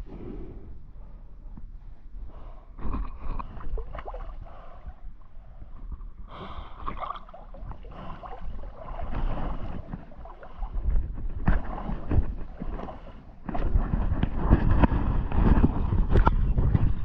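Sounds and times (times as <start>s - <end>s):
water splashing against boat: 2.9s - 5.0s, 6.0s - 17.0s
wind buffeting microphone: 7.5s - 17.0s.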